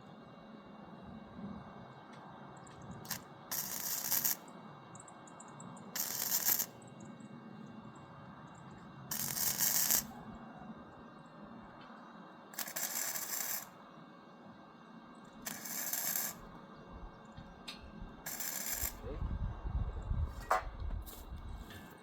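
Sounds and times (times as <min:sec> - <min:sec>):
welding arc crackling and hissing: 0:03.0 - 0:04.5, 0:06.0 - 0:06.8, 0:09.1 - 0:10.1, 0:12.6 - 0:13.8, 0:15.3 - 0:16.6, 0:18.1 - 0:19.2.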